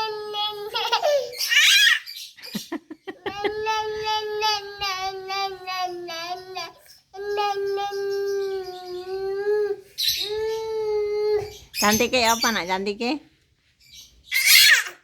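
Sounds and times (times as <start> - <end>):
young child whining cry: 0.0 - 2.0.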